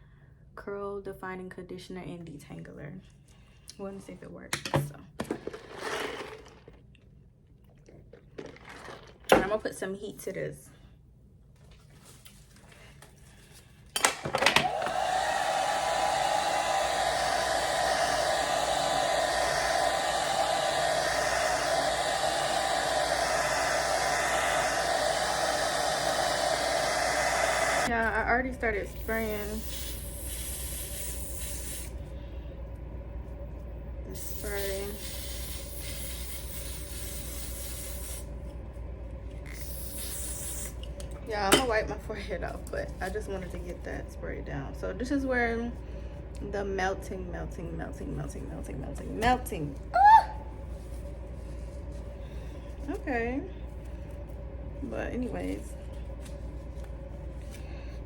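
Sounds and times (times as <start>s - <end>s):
hair dryer blowing: 14.1s - 32.0s
aerosol spray hissing: 28.9s - 32.0s, 34.1s - 38.3s, 39.5s - 40.8s.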